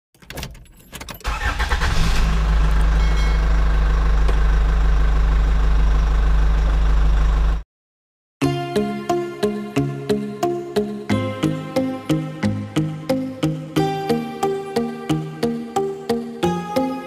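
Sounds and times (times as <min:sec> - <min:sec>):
engine starting and running: 0:01.0 - 0:07.6.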